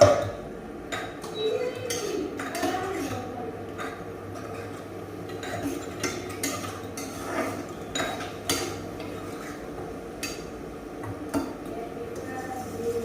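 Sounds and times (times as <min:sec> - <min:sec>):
metal spatula scraping a pan: 0:05.4 - 0:07.7.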